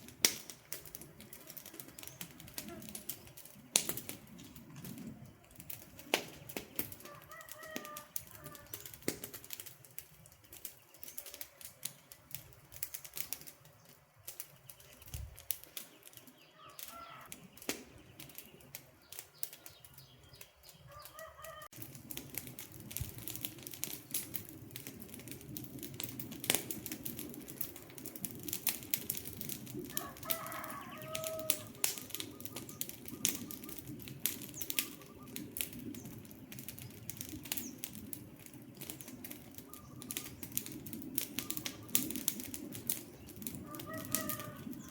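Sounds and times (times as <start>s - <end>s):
low rush of burning: 0.0s - 20.8s, 21.6s - 44.9s
campfire crackling and popping: 0.0s - 44.9s
faint bird calls: 15.8s - 21.7s, 30.0s - 36.1s, 39.5s - 40.6s, 41.4s - 42.2s.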